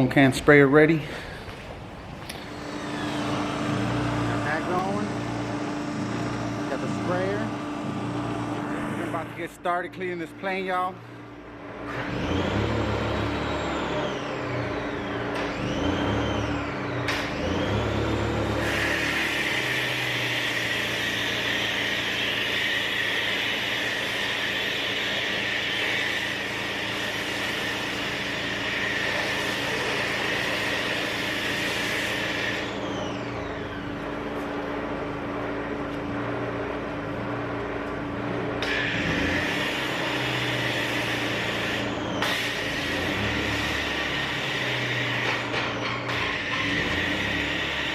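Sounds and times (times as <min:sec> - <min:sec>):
pressure washer hum: 0:00.0 - 0:47.9.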